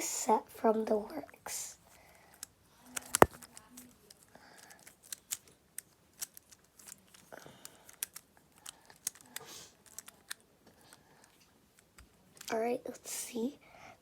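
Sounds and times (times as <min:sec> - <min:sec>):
fidget toy blocks clicking: 0:03.0 - 0:10.4.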